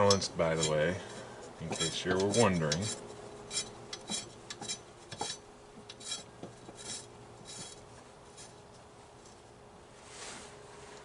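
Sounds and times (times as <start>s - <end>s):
metal scraping on metal: 0.0s - 8.6s.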